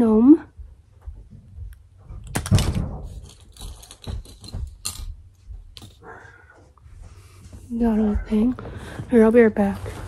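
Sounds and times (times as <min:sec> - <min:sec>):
plastic pieces clicking and knocking: 0:02.2 - 0:05.1.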